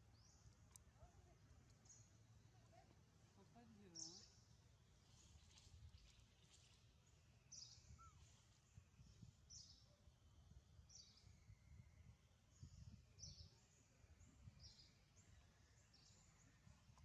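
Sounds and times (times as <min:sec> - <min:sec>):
bird chirping: 0:05.1 - 0:10.0, 0:12.5 - 0:16.8.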